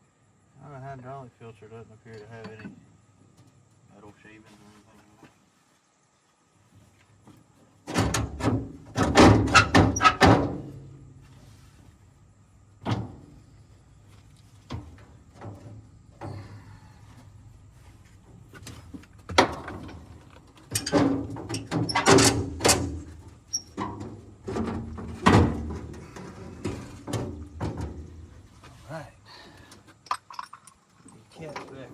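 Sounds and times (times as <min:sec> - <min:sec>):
metal tools clanking: 0:30.0 - 0:31.9.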